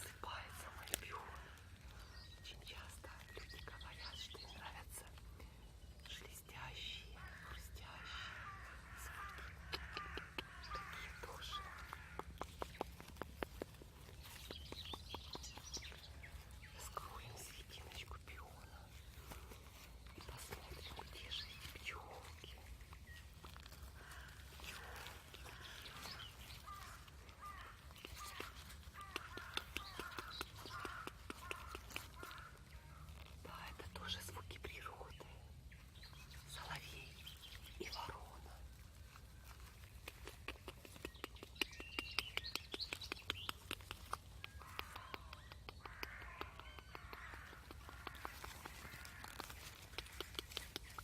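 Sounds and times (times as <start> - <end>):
nightingale singing: 0.0 - 51.0
crows cawing: 7.2 - 12.5, 23.8 - 33.1, 44.6 - 49.8
sharp clicks: 9.2 - 16.2, 23.7 - 32.6, 39.9 - 51.0.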